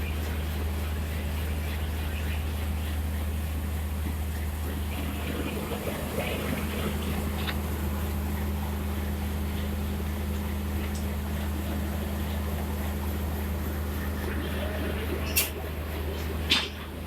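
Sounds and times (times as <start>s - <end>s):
locomotive low hum: 0.0s - 17.0s
faint voices: 13.8s - 16.5s.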